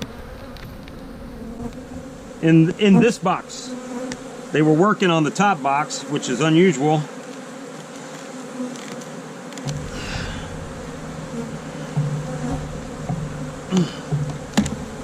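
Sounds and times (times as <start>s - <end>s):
bees buzzing: 0.0s - 15.0s
low rumble: 9.7s - 15.0s.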